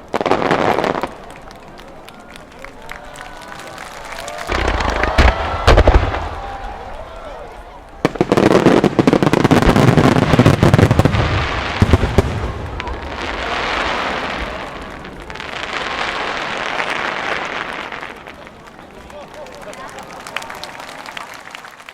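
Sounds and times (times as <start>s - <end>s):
fireworks barrage bangs and booms: 0.0s - 1.8s, 4.0s - 18.8s.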